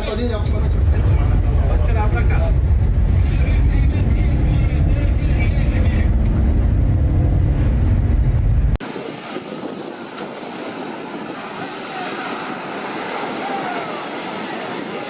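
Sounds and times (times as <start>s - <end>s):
loud low rumble: 0.0s - 8.8s
sea noise: 0.0s - 15.0s
wind: 0.0s - 15.0s.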